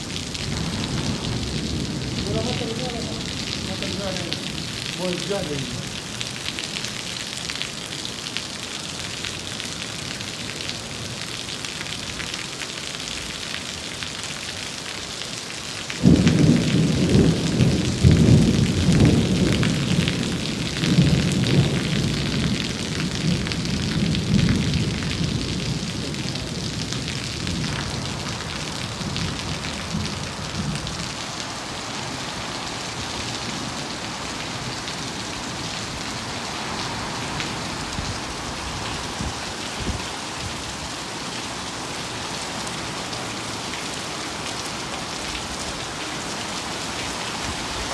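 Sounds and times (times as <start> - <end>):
rumbling thunder: 0.0 - 6.2, 16.0 - 40.7
heavy rain hissing: 0.0 - 13.7, 14.8 - 47.9.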